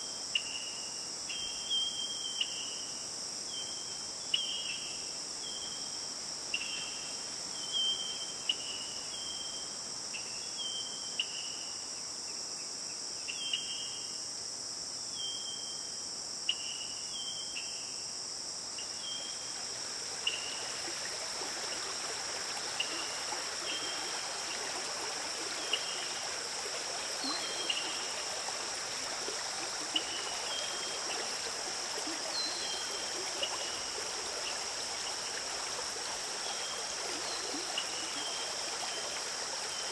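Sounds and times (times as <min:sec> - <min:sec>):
high insect drone: 0:00.0 - 0:39.9
stream rushing: 0:19.4 - 0:39.9.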